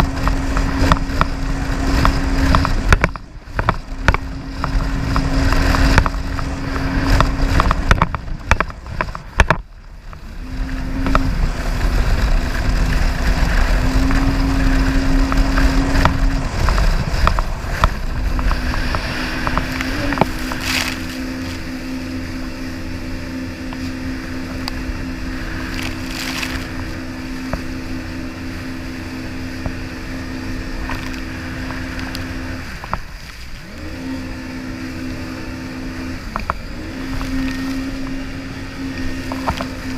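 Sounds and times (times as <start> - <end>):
jet ski engine running: 0.0 - 39.9
wind rumbling on microphone: 0.0 - 39.9.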